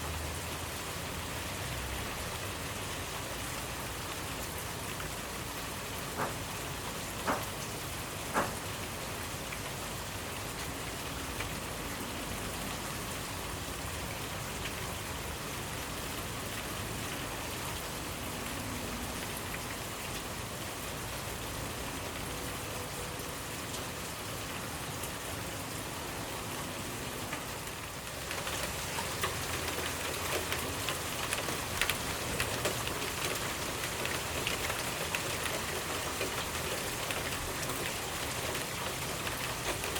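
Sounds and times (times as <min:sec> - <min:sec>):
steady rainfall: 0:00.0 - 0:39.9
raindrops spattering: 0:00.1 - 0:12.8, 0:26.3 - 0:39.9.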